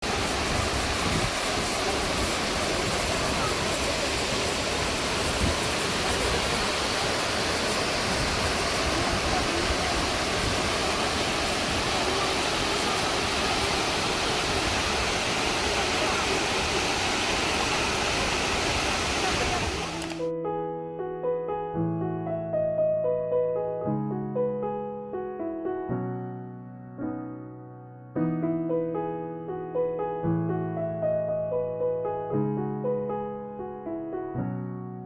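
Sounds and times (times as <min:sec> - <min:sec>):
waterfall rushing: 0:00.0 - 0:20.2.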